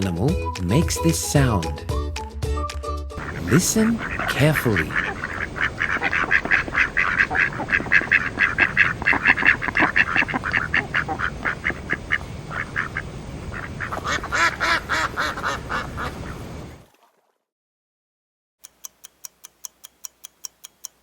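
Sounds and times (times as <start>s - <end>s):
duck quacking: 3.2s - 16.3s.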